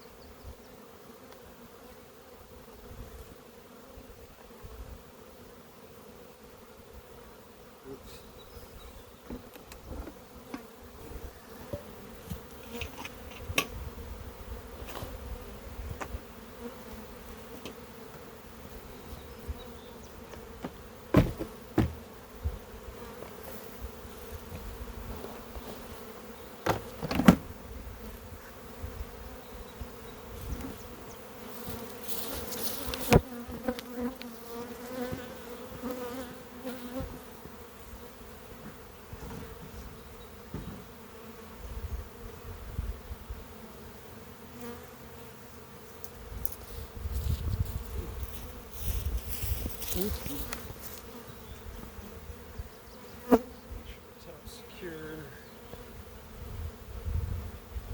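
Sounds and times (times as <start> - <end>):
bees buzzing: 0.0 - 57.9
sharp knocks: 20.6 - 22.0, 26.6 - 27.5.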